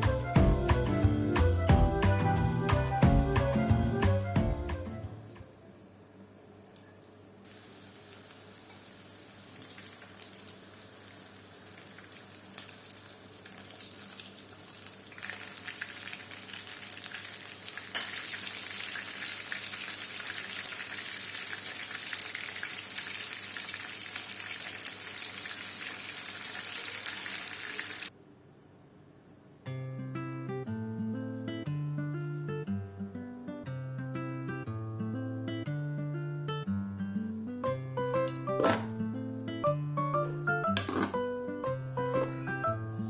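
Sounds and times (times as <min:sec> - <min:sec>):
food frying in hot oil: 0:07.4 - 0:28.1.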